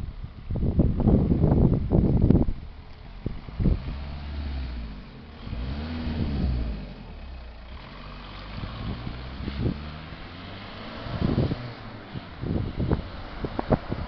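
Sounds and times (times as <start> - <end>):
car engine driving past: 3.5 - 14.0.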